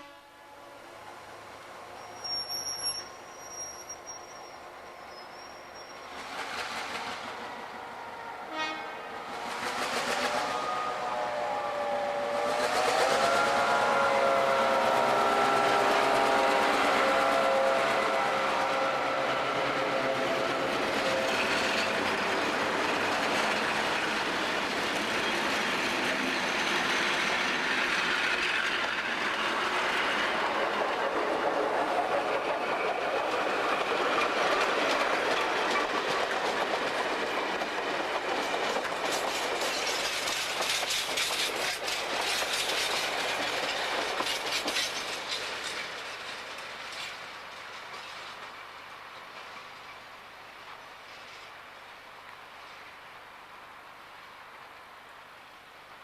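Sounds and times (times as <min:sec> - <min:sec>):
locomotive air horn chord: 0:00.0 - 0:00.8, 0:08.5 - 0:09.1, 0:10.2 - 0:21.4
train passing: 0:00.0 - 0:56.0
wheels clicking over rail joints: 0:30.2 - 0:50.0.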